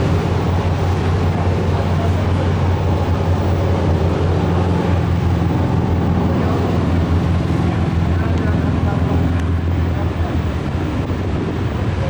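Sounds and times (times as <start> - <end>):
ferry engine drone: 0.0 - 12.0
harbour noise: 0.0 - 12.0.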